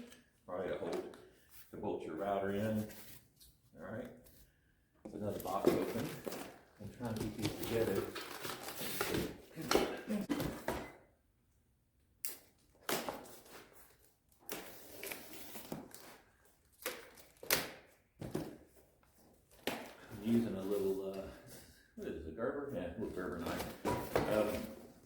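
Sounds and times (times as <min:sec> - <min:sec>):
cardboard rustling and scraping: 0:05.2 - 0:09.6, 0:23.2 - 0:25.0.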